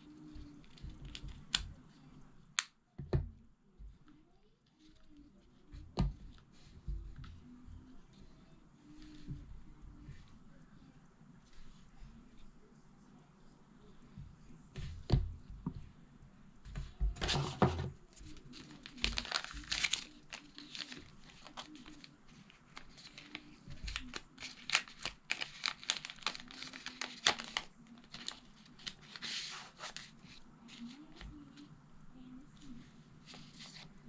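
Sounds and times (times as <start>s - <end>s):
wrapping crinkling and tearing: 18.4s - 30.4s.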